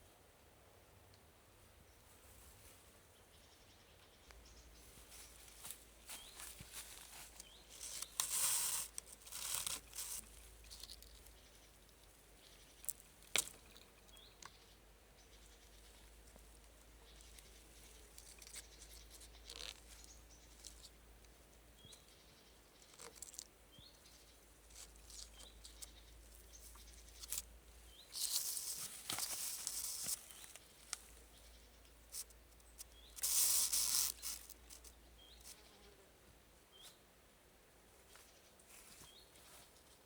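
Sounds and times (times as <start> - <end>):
small bird chirping: 3.1 - 36.0
rustling and scraping: 4.9 - 14.1, 15.8 - 21.0, 24.6 - 31.2, 32.1 - 35.6.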